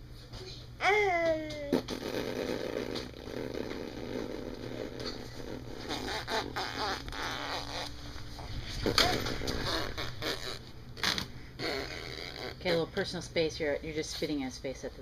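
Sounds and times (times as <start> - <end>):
baby blowing raspberries: 1.7 - 8.0, 8.8 - 12.6
baby squeaking: 5.9 - 7.9, 9.3 - 12.6.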